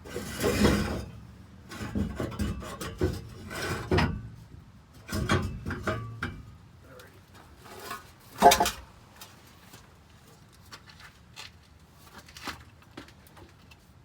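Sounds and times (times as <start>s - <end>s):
metal exhaust pipe clanking: 5.0s - 6.6s, 7.7s - 9.0s.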